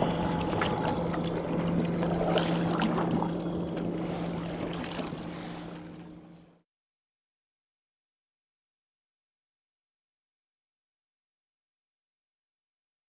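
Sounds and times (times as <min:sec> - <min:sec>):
boat motor humming: 0:00.0 - 0:06.6
rushing water and air: 0:00.0 - 0:06.6.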